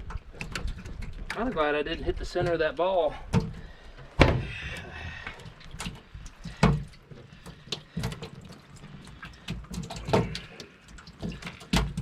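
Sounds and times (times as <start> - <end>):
knocks and clicks in a boat: 0.0 - 12.0
water splashing: 0.0 - 12.0
heavy thump: 4.2 - 4.8.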